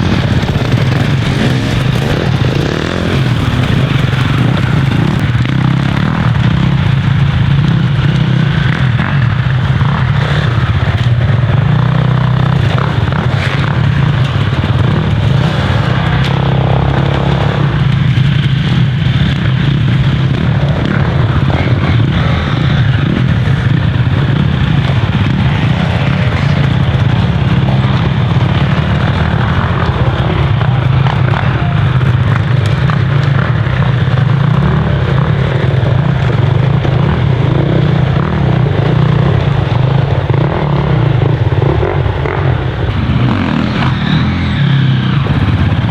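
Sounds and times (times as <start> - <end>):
dirt bike engines running: 0.0 - 45.9.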